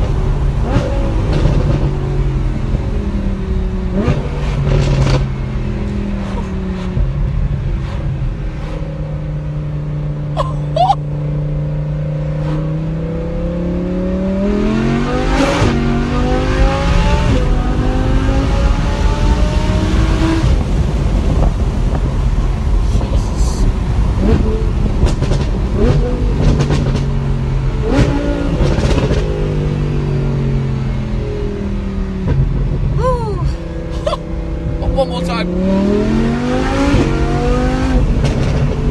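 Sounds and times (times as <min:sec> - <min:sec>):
sports car engine accelerating: 0:00.0 - 0:23.1, 0:23.7 - 0:38.9
exhaust pops and crackles: 0:24.2 - 0:27.2, 0:28.0 - 0:29.4, 0:38.0 - 0:38.9.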